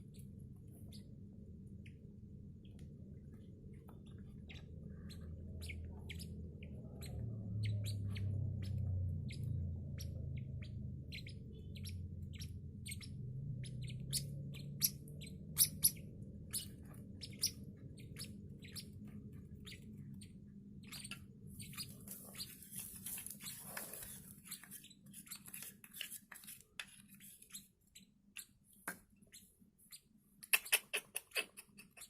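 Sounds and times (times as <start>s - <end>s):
low steady hum: 0.0s - 30.5s
chicks peeping: 3.4s - 25.7s.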